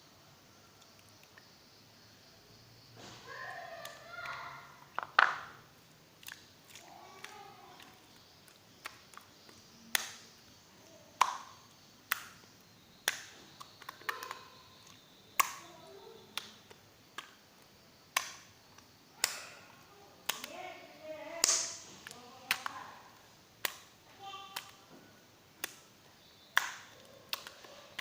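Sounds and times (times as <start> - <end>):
slime popping and clicking: 6.2 - 10.2, 11.2 - 15.7, 16.3 - 17.4, 18.1 - 19.5, 20.2 - 20.6, 21.4 - 22.8, 23.6 - 24.8, 25.6 - 25.8, 26.5 - 28.0.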